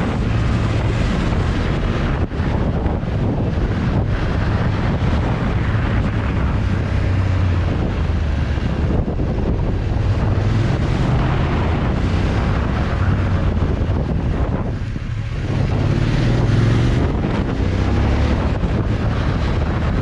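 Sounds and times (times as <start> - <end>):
motorcycle engine humming: 0.0 - 20.0
wind buffeting microphone: 0.0 - 20.0.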